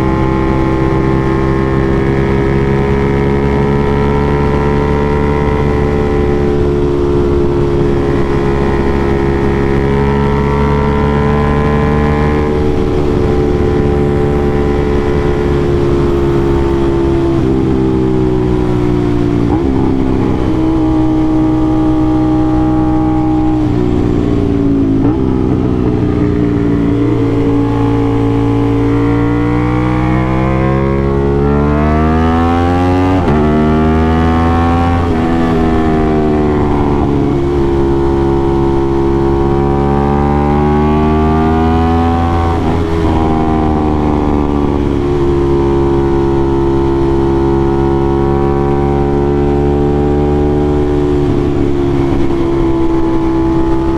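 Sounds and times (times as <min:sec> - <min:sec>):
motorcycle engine while riding: 0:00.0 - 0:53.9.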